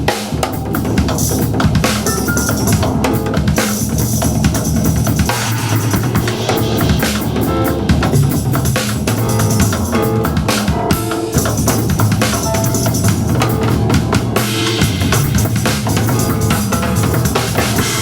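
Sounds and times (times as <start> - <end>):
band music: 0.0 - 18.0
drum kit playing: 0.0 - 18.0.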